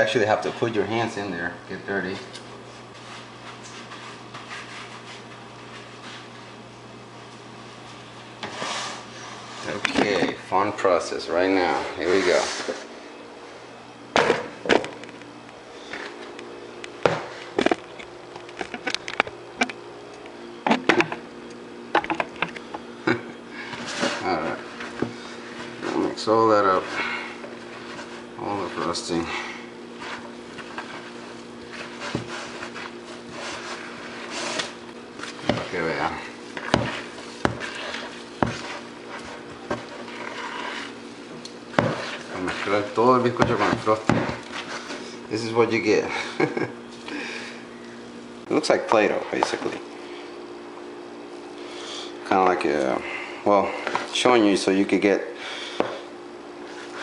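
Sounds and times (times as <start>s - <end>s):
hands squishing cake mixture: 26.6s - 45.1s.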